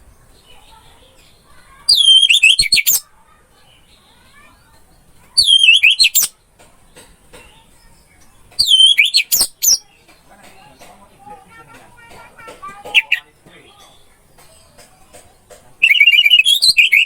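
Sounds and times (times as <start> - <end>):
thrush singing whistles: 1.9 - 3.1, 5.4 - 6.3, 8.6 - 9.8, 15.8 - 17.0.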